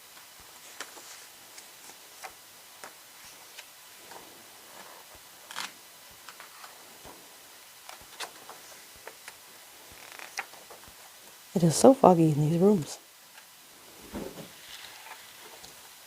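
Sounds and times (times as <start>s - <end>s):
paper pages rustling: 0.1s - 7.2s, 7.8s - 11.0s, 13.3s - 15.8s.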